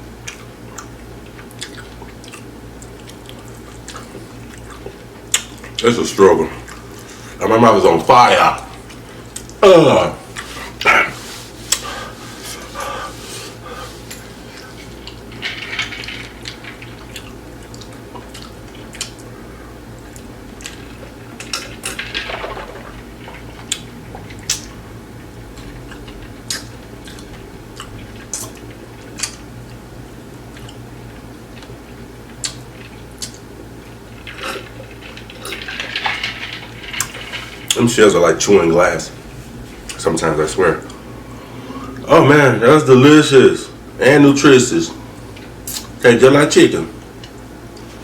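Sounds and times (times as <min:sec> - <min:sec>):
steady low hum: 0:00.0 - 0:48.0
chewing crunchy taco shells: 0:00.1 - 0:05.8, 0:14.0 - 0:37.8.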